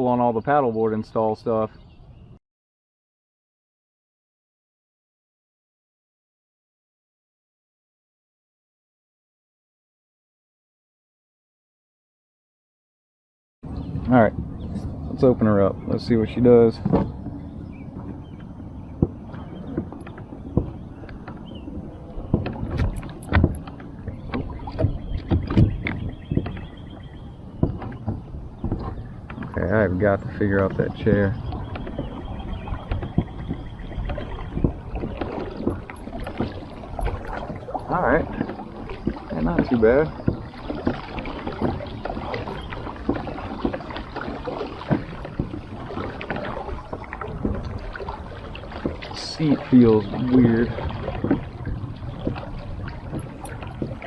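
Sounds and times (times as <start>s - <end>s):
kayak drive knocking and splashing: 14.9s - 54.0s
small irregular clicks and knocks: 22.3s - 26.6s, 35.0s - 39.7s, 53.1s - 54.0s.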